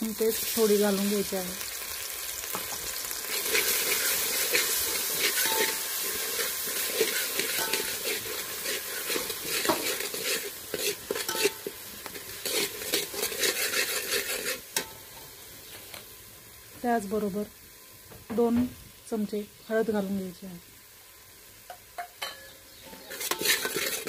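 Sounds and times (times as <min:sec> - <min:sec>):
onions sizzling in hot oil: 0:00.0 - 0:24.0
metal spatula scraping a pot: 0:03.2 - 0:15.0, 0:22.2 - 0:24.0.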